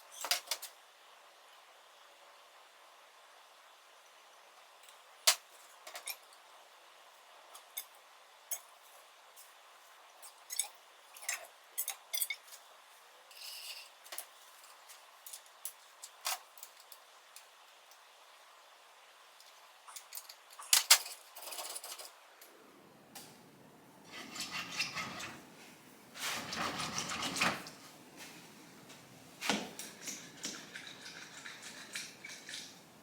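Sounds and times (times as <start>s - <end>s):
metal parts and tools clinking: 10.2s - 12.6s, 19.9s - 22.2s, 29.8s - 32.9s.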